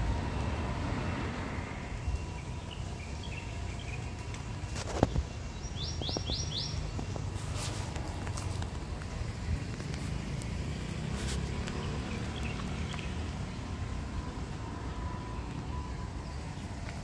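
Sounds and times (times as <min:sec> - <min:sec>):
bird chirping: 0:05.5 - 0:07.0.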